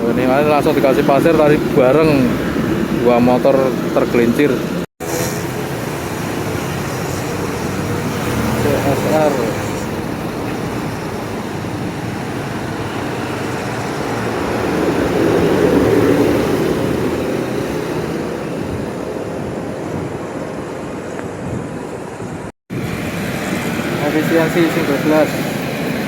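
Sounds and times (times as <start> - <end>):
road traffic: 0.0 - 26.0
vehicle passing close by: 0.2 - 26.0.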